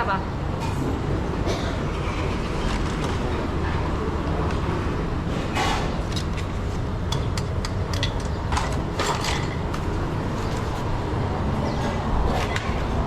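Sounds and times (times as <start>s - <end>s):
dishes clinking and clattering: 5.3s - 10.9s.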